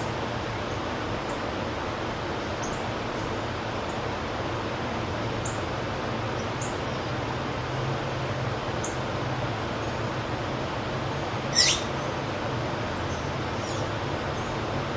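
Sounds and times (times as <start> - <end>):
high-pitched bird chirps: 11.5 - 11.9.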